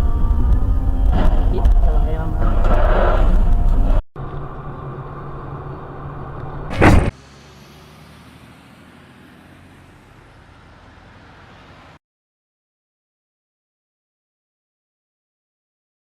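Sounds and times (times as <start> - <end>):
vehicle engine and road noise: 0.0 - 12.0
loud collision bang: 6.7 - 7.2.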